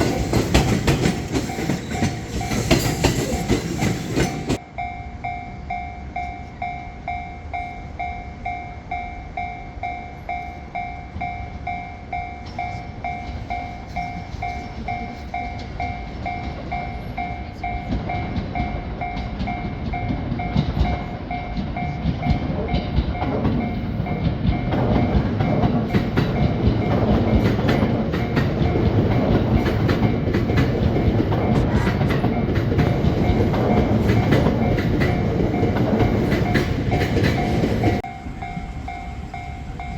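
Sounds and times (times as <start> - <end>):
train wheels clattering on rails: 0.0 - 4.6, 11.1 - 39.9
level crossing alarm ringing: 0.0 - 22.5, 32.2 - 39.9.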